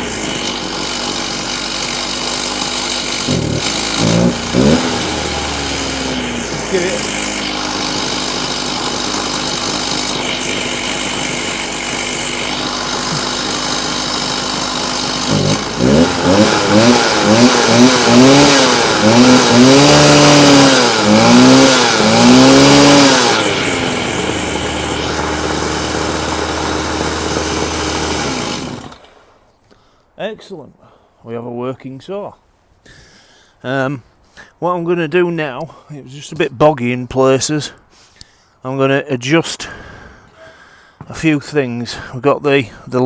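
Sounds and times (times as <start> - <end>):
two-stroke saw engine revving: 0.0 - 29.4.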